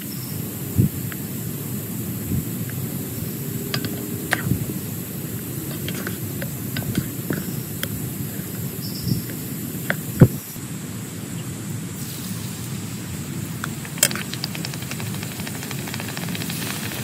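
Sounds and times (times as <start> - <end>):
heavy rain on a tent: 11.8 - 17.0.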